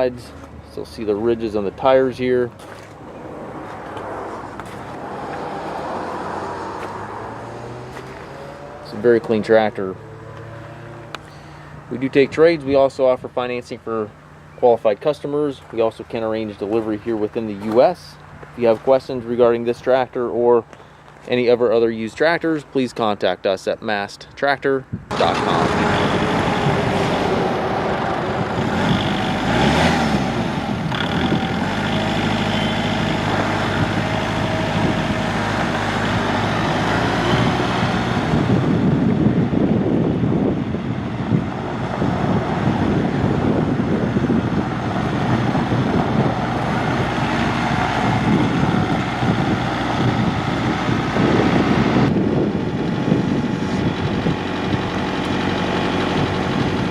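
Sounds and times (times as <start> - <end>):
diesel tractor engine running: 0.0 - 20.0, 25.0 - 56.9.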